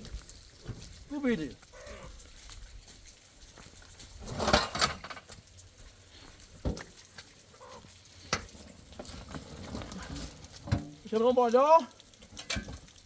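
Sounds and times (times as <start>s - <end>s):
livestock animal call: 1.7s - 2.2s, 7.6s - 7.9s.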